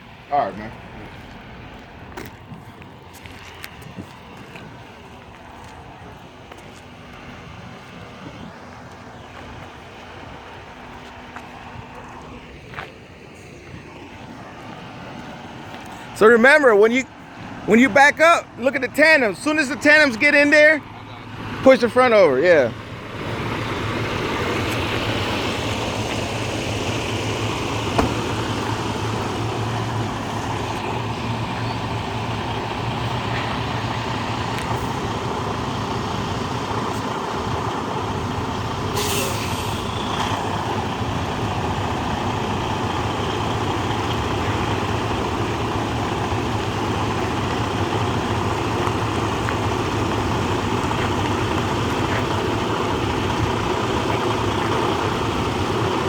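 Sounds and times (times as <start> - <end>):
diesel truck engine running: 0.0 - 56.0
short sharp air hiss: 38.9 - 40.0.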